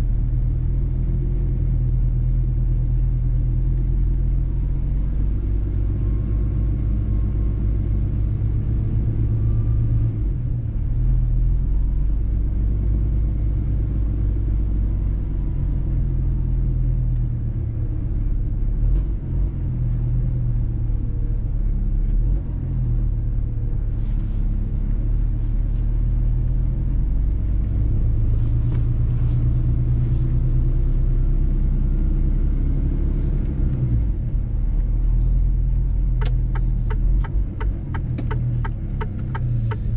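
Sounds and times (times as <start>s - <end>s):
low road rumble: 0.0s - 39.9s
truck diesel engine running: 34.3s - 39.9s
faint light ticks: 35.9s - 39.9s.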